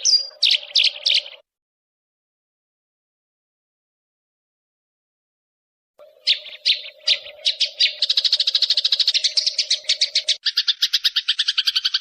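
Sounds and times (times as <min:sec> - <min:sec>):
songbird chirps and trills: 0:00.0 - 0:01.5, 0:06.0 - 0:12.0.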